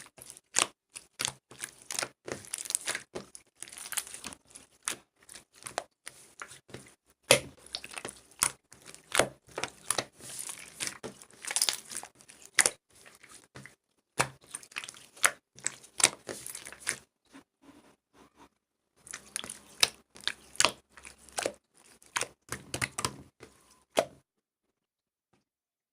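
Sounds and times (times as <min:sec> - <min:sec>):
crinkling and crackling: 0:00.0 - 0:18.4.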